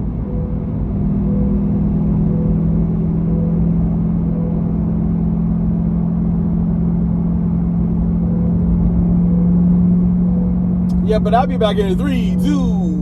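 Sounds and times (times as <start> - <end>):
road rumble: 10.9 - 13.0.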